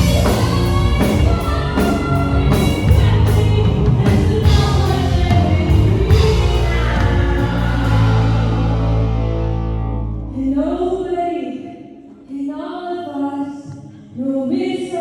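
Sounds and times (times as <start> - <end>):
person singing a show-tune ballad: 0.0 - 9.1
instrumental backing track: 0.0 - 10.4.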